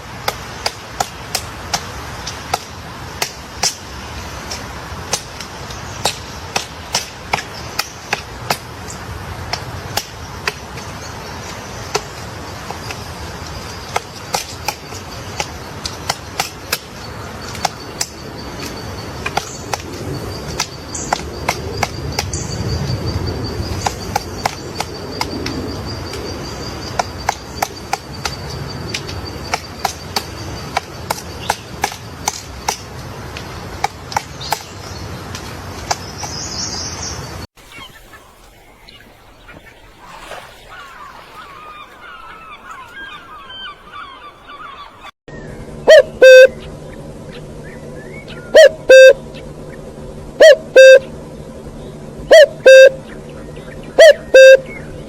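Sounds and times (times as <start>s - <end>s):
warbling bird song: 0.0s - 55.0s
low doubled hooting calls: 40.7s - 55.0s
steady high tone: 45.3s - 49.7s, 50.3s - 51.6s, 52.3s - 53.1s, 54.0s - 54.9s.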